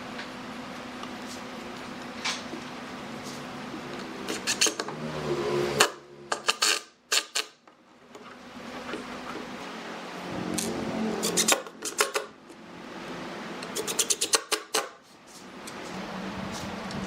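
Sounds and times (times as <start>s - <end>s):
steady low hum: 15.0s - 17.0s.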